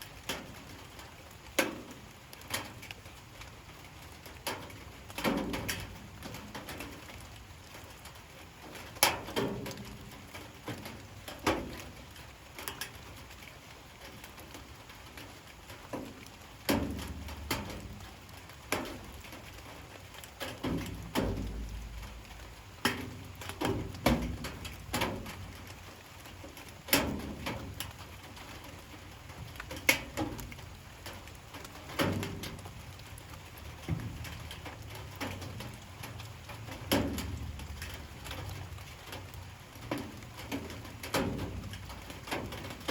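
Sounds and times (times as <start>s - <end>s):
light rain patter: 0.0s - 42.9s
water dripping on hard surface: 0.0s - 42.9s.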